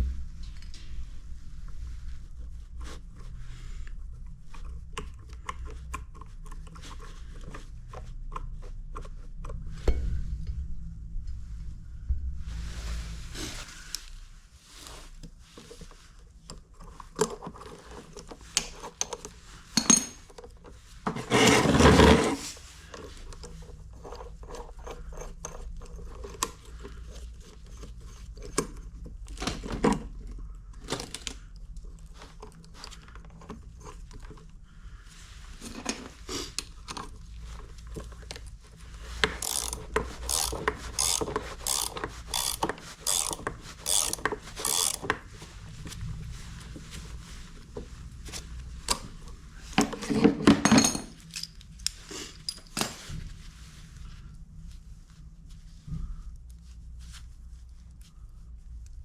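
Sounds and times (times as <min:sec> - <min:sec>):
hand tools clicking and scraping: 0:16.5 - 0:28.8, 0:39.1 - 0:45.3.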